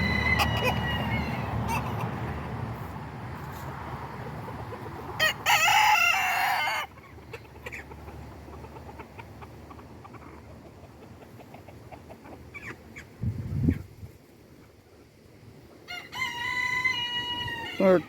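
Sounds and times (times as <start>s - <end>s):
rooster crowing: 0.0s - 2.0s, 5.2s - 6.9s, 15.9s - 18.0s.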